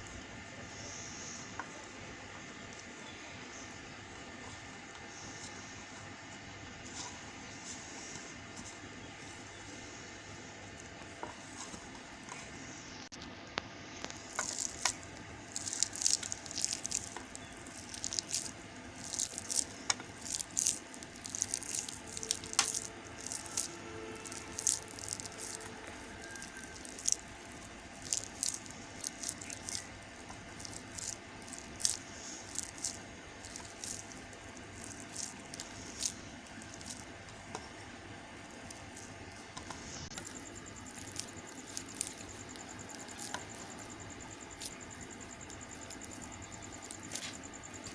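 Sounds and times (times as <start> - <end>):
soap bars scratching and crackling: 13.9 - 47.9.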